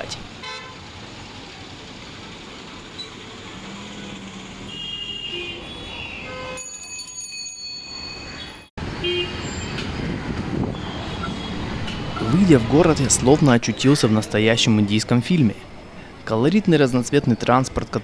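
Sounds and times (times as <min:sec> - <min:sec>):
busy street traffic: 0:00.0 - 0:18.0
vehicle horns tooting: 0:00.4 - 0:00.8, 0:03.7 - 0:06.7, 0:08.4 - 0:13.3.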